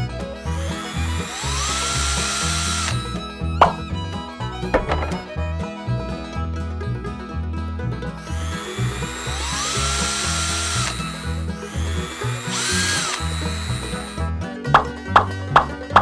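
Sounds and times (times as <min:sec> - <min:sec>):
small electric motor whirring: 0:00.4 - 0:03.3, 0:08.2 - 0:14.3
sharp clicks: 0:00.4 - 0:03.8, 0:08.2 - 0:14.3.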